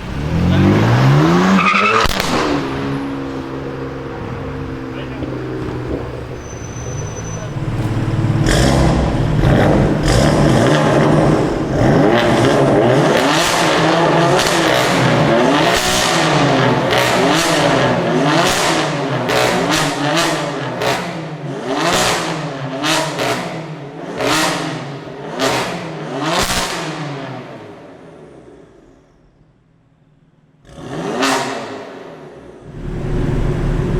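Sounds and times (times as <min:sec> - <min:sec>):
exhaust cracks: 0:00.0 - 0:20.0, 0:32.6 - 0:33.9
car engine revving hard: 0:00.0 - 0:27.6, 0:30.6 - 0:33.9.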